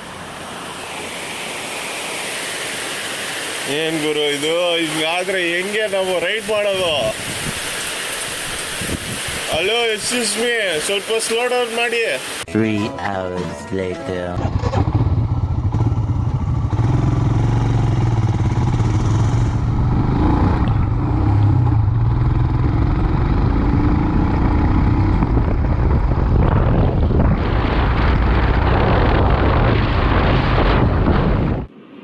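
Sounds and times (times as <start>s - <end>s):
rushing noise: 0.0s - 12.5s, 14.4s - 32.0s
motorcycle engine running: 14.4s - 26.9s.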